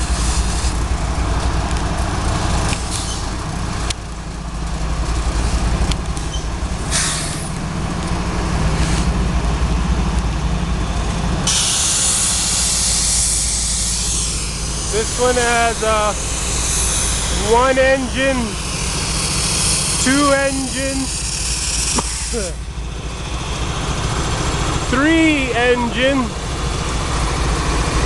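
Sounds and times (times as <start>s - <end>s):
diesel locomotives rumbling past: 0.0s - 28.0s
loud hiss: 6.9s - 7.5s, 11.5s - 22.6s.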